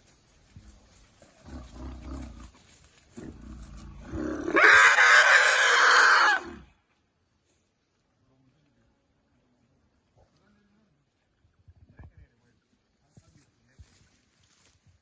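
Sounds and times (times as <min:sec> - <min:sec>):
elephant trumpeting: 0:04.5 - 0:06.5.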